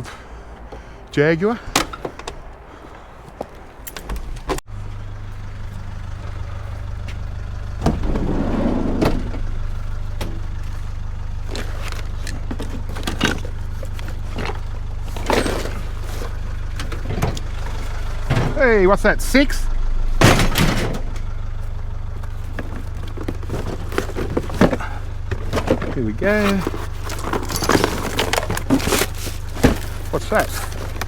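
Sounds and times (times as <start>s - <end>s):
handling sounds: 0.0s - 4.6s, 8.9s - 18.6s, 20.2s - 31.0s
car engine running: 0.0s - 31.0s
knocks and rattles: 11.5s - 18.7s, 20.1s - 31.0s.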